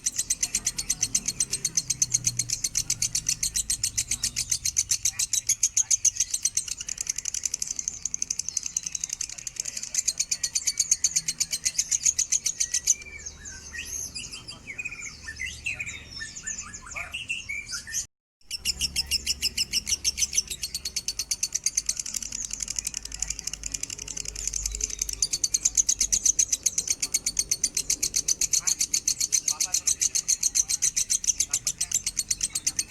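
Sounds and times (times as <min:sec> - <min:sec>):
lovebird chattering trill: 0:00.0 - 0:32.9.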